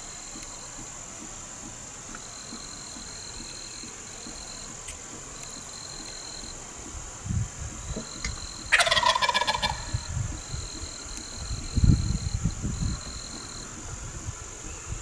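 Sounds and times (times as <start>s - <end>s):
turkey gobbling: 8.0s - 10.1s.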